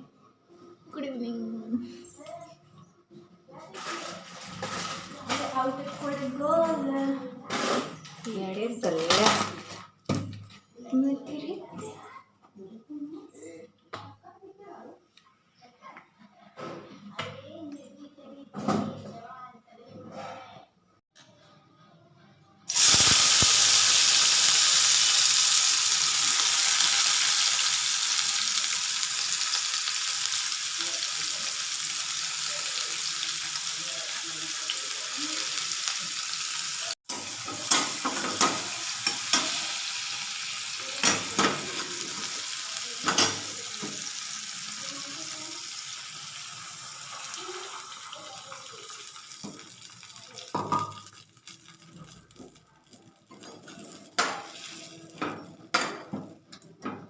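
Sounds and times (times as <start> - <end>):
food sizzling in hot oil: 22.7 - 55.2.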